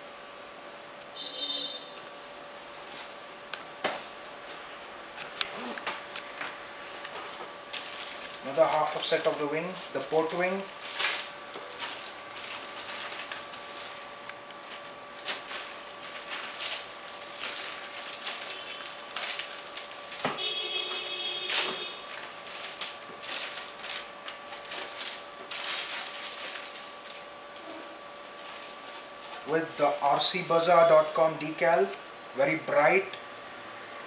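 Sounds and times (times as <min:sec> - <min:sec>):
foam and packaging rustling: 0:03.8 - 0:30.0.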